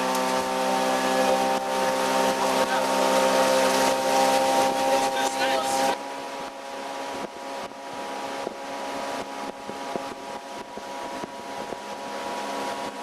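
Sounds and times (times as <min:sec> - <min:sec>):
outboard motor humming: 0:00.0 - 0:13.0
wind noise on microphone: 0:05.8 - 0:13.0.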